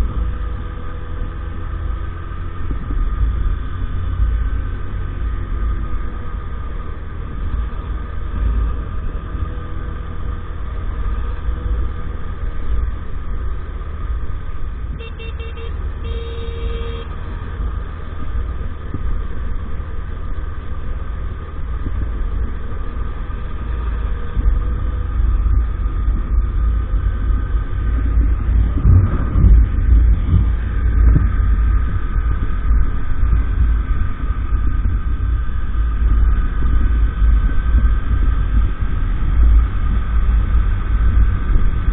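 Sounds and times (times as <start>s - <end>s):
wind rumble on microphone: 0.0s - 15.2s, 17.0s - 41.9s
horn beeps: 14.9s - 17.2s.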